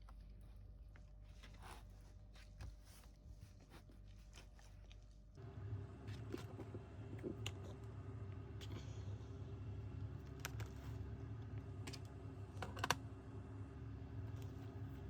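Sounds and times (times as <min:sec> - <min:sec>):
laptop cooling fan humming: 0:05.4 - 0:15.0.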